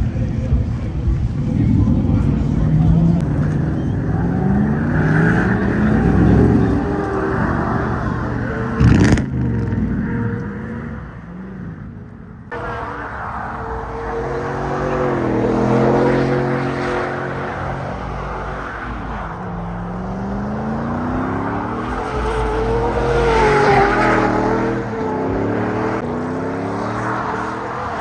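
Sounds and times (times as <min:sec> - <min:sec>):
pickup truck engine revving: 0:12.5 - 0:28.0.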